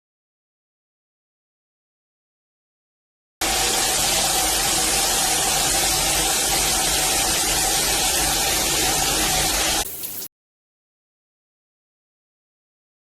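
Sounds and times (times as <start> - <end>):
shower water spraying: 3.4 - 10.3.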